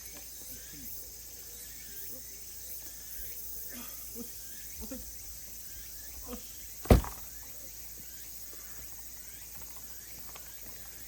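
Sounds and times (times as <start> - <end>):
tree trunk section hitting ground: 6.8 - 7.4.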